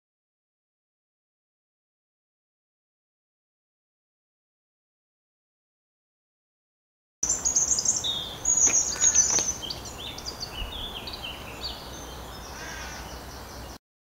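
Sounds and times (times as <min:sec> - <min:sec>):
birds chirping and trilling: 0:07.2 - 0:13.8.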